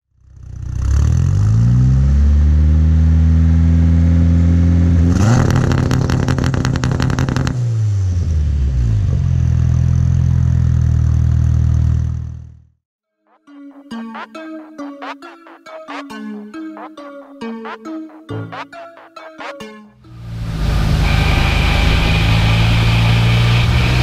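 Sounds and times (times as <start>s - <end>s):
engine revving: 0.4s - 12.6s, 20.1s - 24.0s
crackling exhaust pops: 5.4s - 7.6s
car engine idling: 20.2s - 24.0s.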